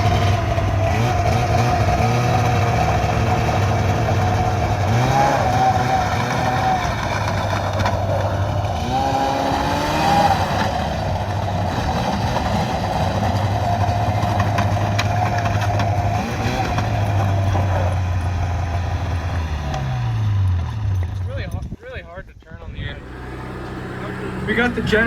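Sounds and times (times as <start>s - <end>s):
small engine droning: 0.0s - 21.3s, 22.8s - 25.0s.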